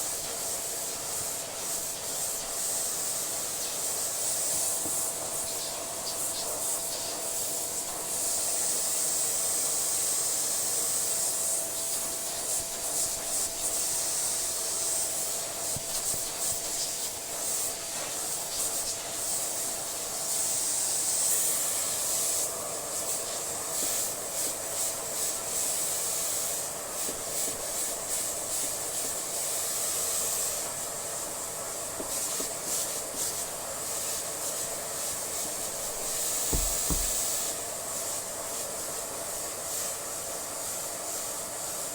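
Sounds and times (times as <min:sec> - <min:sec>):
vacuum cleaner motor whine: 0:19.0 - 0:37.4.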